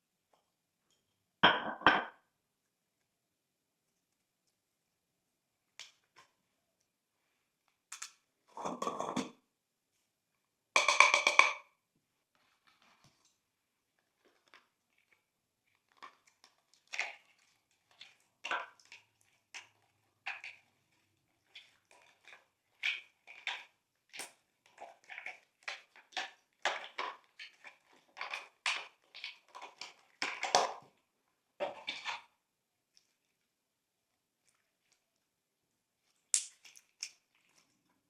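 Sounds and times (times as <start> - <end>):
slime squelching: 13.8 - 35.3, 35.9 - 38.0.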